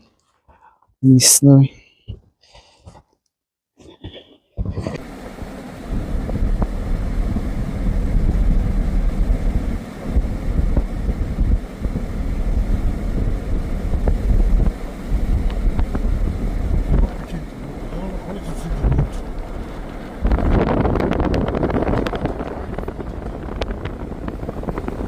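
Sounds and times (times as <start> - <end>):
loud low rumbling: 5.0 - 25.0.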